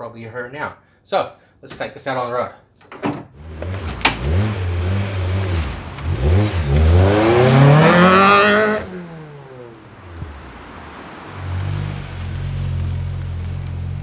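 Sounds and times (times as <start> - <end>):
car engine revving and accelerating: 3.4 - 14.0.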